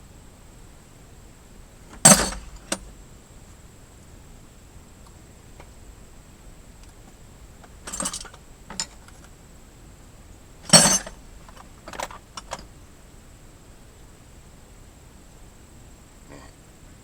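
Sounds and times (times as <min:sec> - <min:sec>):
metal objects clinking: 0:02.0 - 0:02.8, 0:07.9 - 0:09.1, 0:10.7 - 0:12.6.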